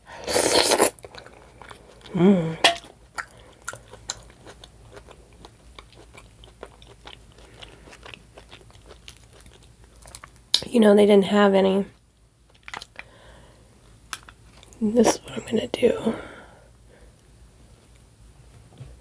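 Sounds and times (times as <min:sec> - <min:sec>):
person chewing: 0:00.2 - 0:10.6, 0:12.5 - 0:13.1
person humming: 0:02.1 - 0:02.8.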